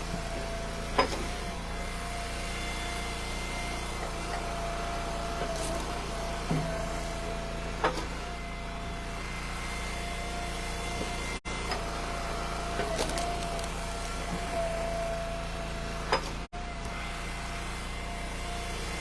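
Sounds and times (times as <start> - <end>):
log splitter engine running: 0.0 - 19.0
wood splitting cracks: 12.8 - 14.3.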